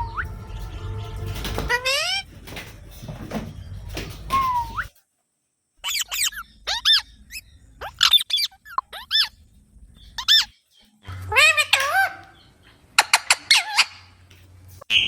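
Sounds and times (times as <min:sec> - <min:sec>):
shrill parrot calls: 0:05.8 - 0:09.4, 0:10.2 - 0:14.2.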